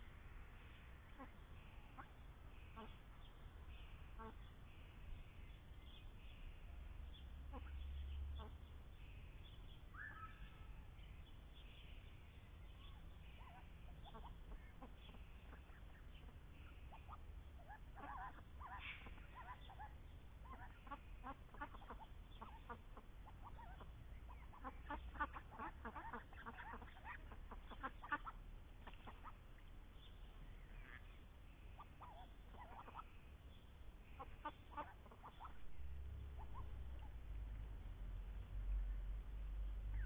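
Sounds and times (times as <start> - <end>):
ducks quacking: 1.1 - 3.0, 13.3 - 29.6, 30.6 - 33.1, 34.0 - 37.3.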